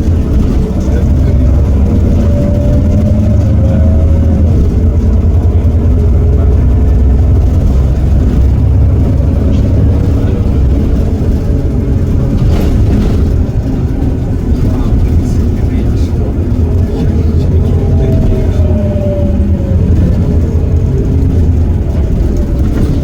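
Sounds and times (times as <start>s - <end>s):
bus diesel engine droning: 0.0s - 23.0s.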